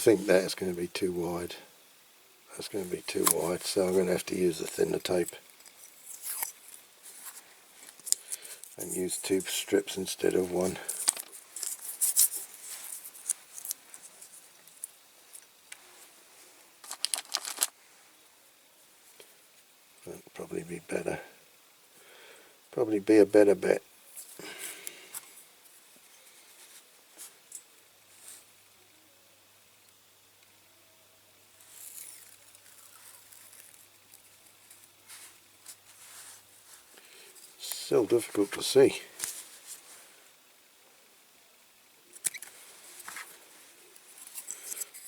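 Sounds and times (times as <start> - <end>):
masking tape rustling: 2.5 - 15.5, 16.8 - 17.8, 31.6 - 38.6
light handling ticks: 2.5 - 15.8, 31.6 - 39.8, 42.1 - 45.0
masking tape ripping: 6.0 - 6.6.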